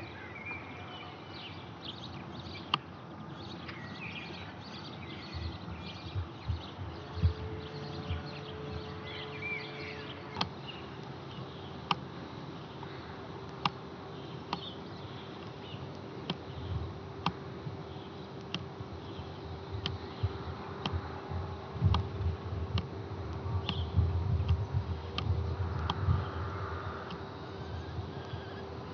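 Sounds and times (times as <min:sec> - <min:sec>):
sharp ticks: 0:21.8 - 0:26.2
faint bird chirps: 0:26.0 - 0:28.9.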